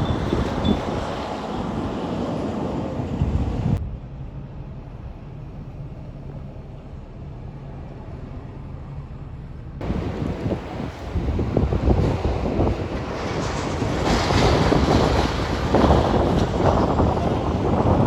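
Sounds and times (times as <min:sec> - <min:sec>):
wind buffeting microphone: 0:00.0 - 0:05.6, 0:09.8 - 0:18.0
low engine hum: 0:00.0 - 0:18.0.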